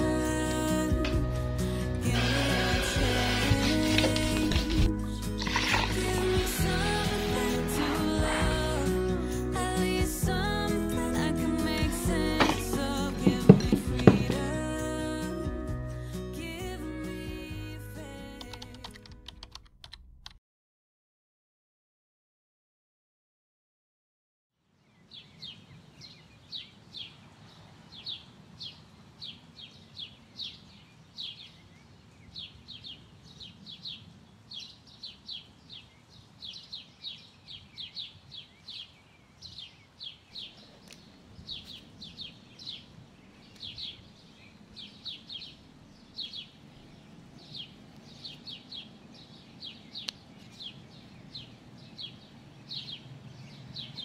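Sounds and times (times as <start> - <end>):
small birds chirping: 24.7 - 54.0.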